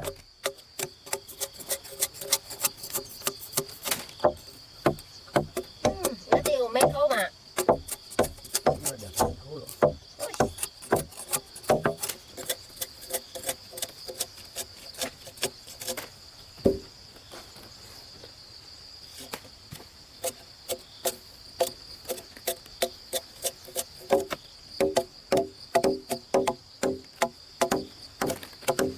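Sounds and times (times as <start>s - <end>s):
hand tool knocking wood: 0.0s - 14.3s, 16.6s - 16.9s, 20.7s - 28.9s
high buzz of insects: 0.0s - 28.9s.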